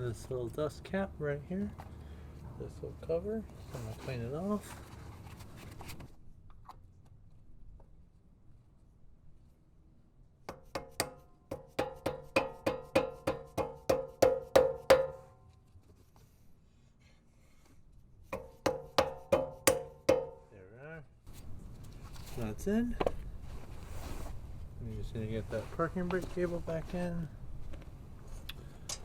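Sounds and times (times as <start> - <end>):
hammer tapping metal cap: 10.5 - 15.3, 18.4 - 20.5.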